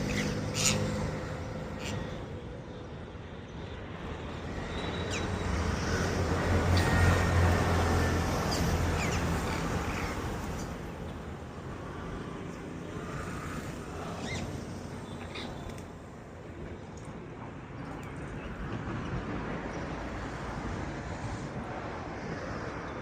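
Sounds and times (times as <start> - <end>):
birds chirping: 0.0 - 2.4, 4.2 - 11.2, 12.5 - 16.3.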